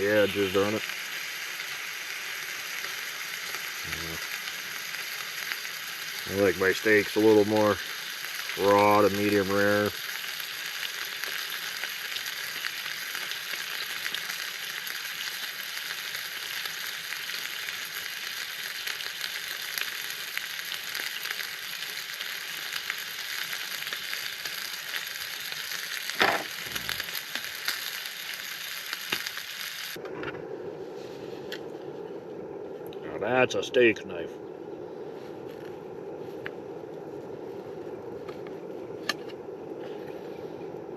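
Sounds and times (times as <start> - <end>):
steak sizzling in a pan: 0.0 - 30.0
low steady hum: 30.0 - 40.9.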